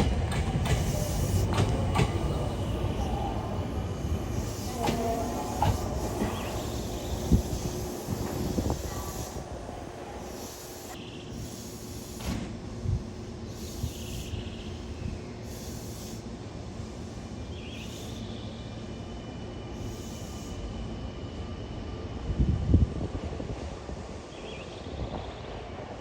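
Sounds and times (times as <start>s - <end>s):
train wheel thumps: 0.0s - 2.8s
electric train rumbling: 0.0s - 26.0s.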